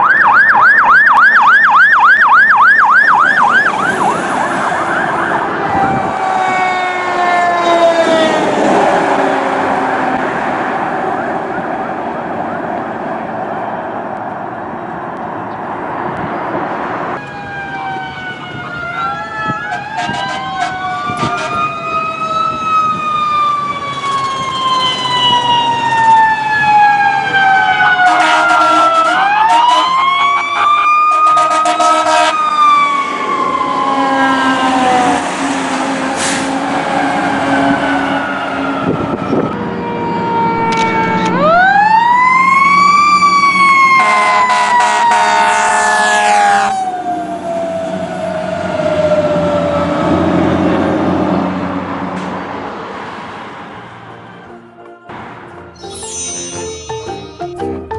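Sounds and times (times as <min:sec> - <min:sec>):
traffic rumble: 0:00.0 - 0:55.8
emergency sirens wailing: 0:00.0 - 0:57.9
short blaring horn blasts: 0:19.6 - 0:21.7, 0:28.1 - 0:32.4, 0:44.0 - 0:46.8.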